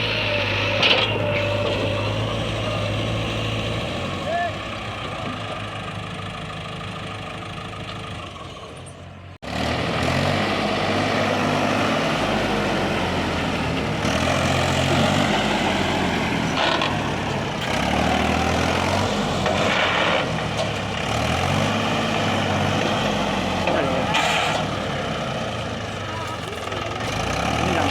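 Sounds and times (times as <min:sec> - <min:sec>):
diesel engine revving: 0:00.0 - 0:27.9.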